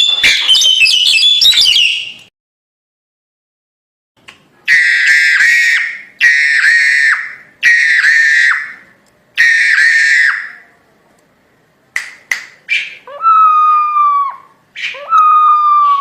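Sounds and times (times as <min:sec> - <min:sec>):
myna shrill whistled calls: 0:00.0 - 0:02.3, 0:04.7 - 0:08.8, 0:09.4 - 0:10.6, 0:12.7 - 0:16.0.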